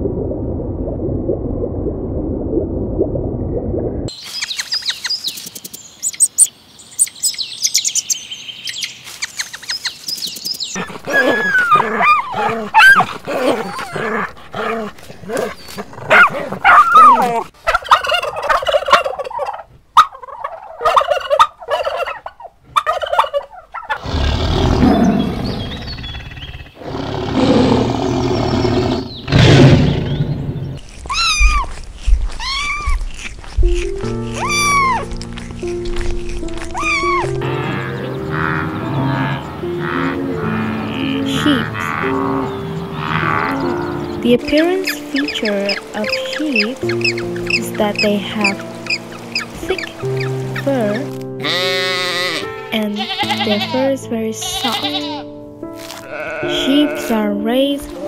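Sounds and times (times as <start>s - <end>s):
turkey gobbling: 16.1s - 24.0s, 36.8s - 38.8s
cat meowing: 53.0s - 53.7s, 54.6s - 55.2s, 56.1s - 57.1s.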